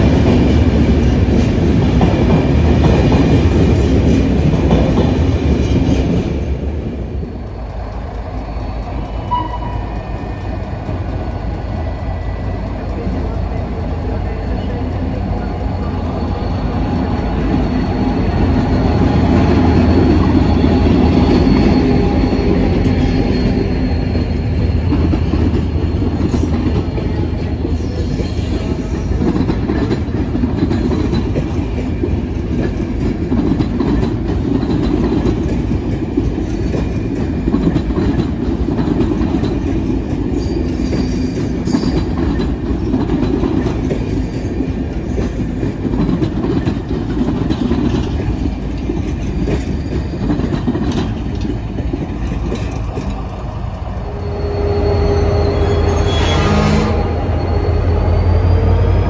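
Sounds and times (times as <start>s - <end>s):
locomotive running noise: 0.0s - 59.0s
train wheel rumble: 0.0s - 59.0s
high wheel squeal: 14.2s - 29.3s, 40.3s - 43.0s, 52.3s - 59.0s
wheels clicking over rail joints: 24.8s - 54.0s.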